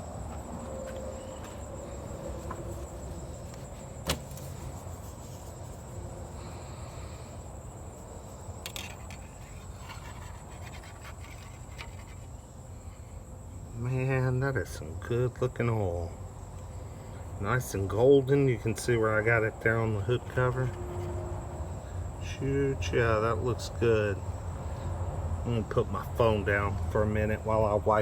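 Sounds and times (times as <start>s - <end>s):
handling sounds at car hood: 2.4s - 4.8s.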